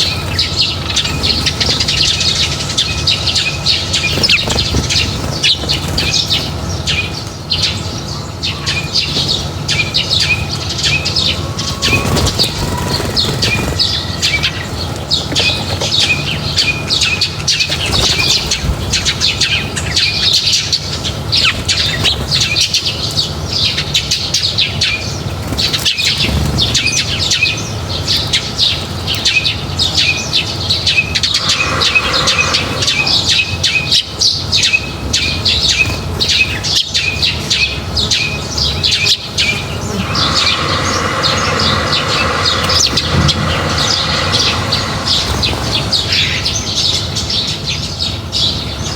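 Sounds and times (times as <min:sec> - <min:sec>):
wings flapping: 0:00.0 - 0:07.8, 0:08.6 - 0:20.4, 0:25.4 - 0:27.4, 0:30.8 - 0:34.1, 0:39.1 - 0:46.9
small birds chirping: 0:00.0 - 0:48.9.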